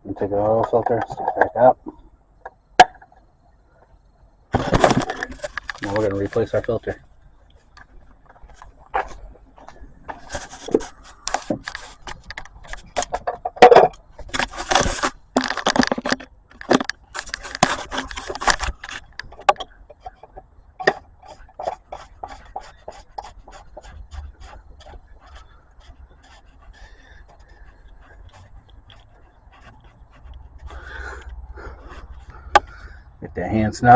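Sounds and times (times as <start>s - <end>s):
plastic cap scraping and clicking: 7.7s - 30.6s.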